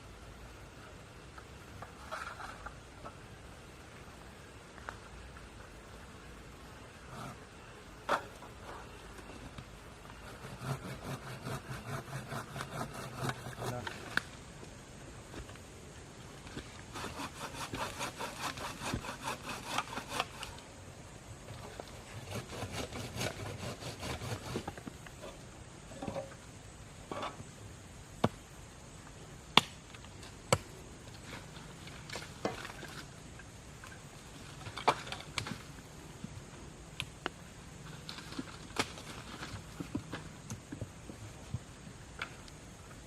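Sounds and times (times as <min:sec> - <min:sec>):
hand saw cutting wood: 0:10.2 - 0:14.0, 0:16.9 - 0:20.6, 0:22.0 - 0:24.8.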